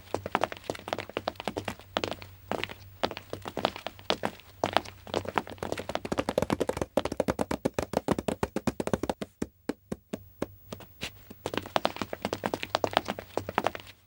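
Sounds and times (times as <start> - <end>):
quick footsteps: 0.0 - 14.0.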